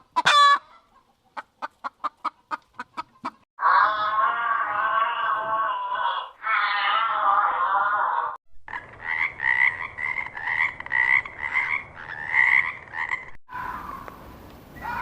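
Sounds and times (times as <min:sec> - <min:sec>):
sustained animal call: 0:03.6 - 0:14.0.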